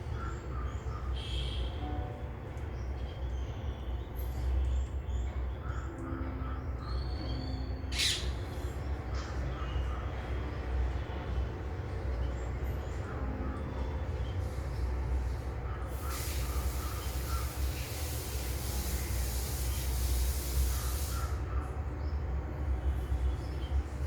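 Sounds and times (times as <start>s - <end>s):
bird calls: 5.6s - 10.2s.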